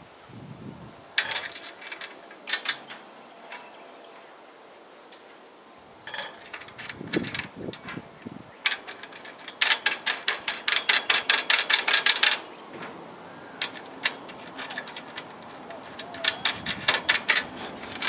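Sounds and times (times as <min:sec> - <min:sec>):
scattered clicks and knocks: 0:01.2 - 0:03.7, 0:06.0 - 0:08.0, 0:08.6 - 0:18.0.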